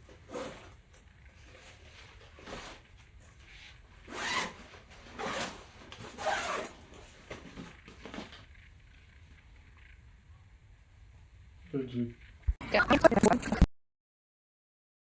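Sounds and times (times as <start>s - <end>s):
backpack zipper pulled: 0.2s - 0.8s, 4.0s - 7.5s.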